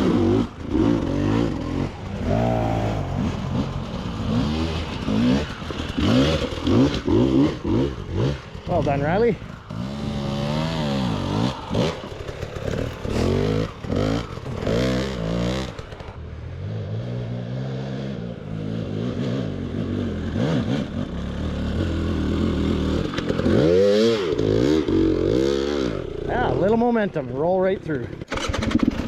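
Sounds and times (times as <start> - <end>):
dirt bike engine revving: 0.0 - 29.0
clatter on rocky ground: 11.8 - 14.8.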